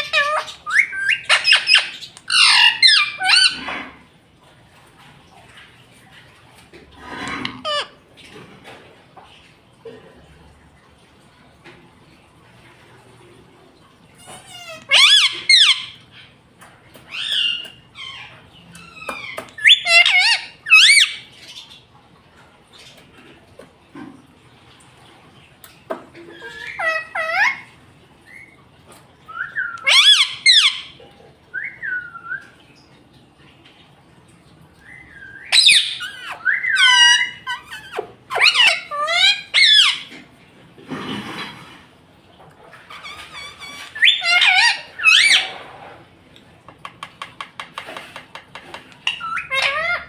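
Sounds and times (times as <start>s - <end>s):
parakeet squawking calls: 0.0s - 3.7s, 7.4s - 8.0s, 14.4s - 16.0s, 17.1s - 21.3s, 26.4s - 27.7s, 29.4s - 31.0s, 35.3s - 40.1s, 42.9s - 45.6s, 49.0s - 50.0s.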